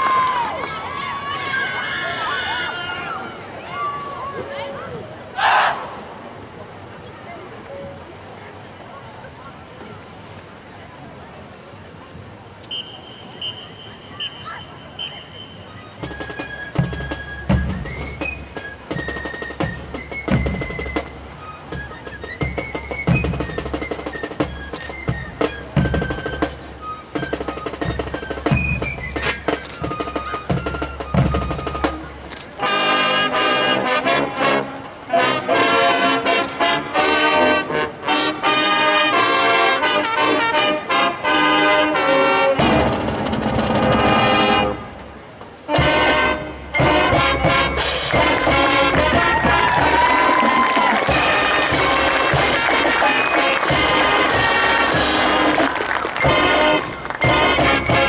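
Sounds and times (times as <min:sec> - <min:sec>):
marching band playing: 0:14.7 - 0:58.0
drum hits: 0:16.0 - 0:32.3, 0:42.6 - 0:45.1, 0:45.8 - 0:58.0
brass section playing loud: 0:27.2 - 0:58.0.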